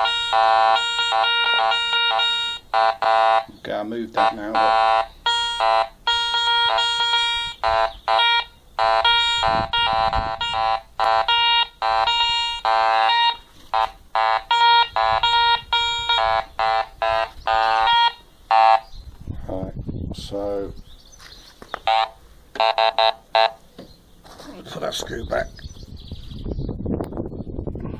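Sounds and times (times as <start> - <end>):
metal detector tone bursts: 0.0 - 3.5, 4.2 - 18.9, 21.9 - 23.6.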